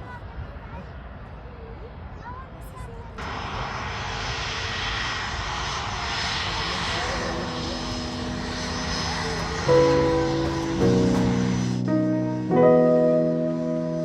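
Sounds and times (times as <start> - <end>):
jet airliner engines passing: 0.0 - 14.0
piano music: 8.0 - 14.0.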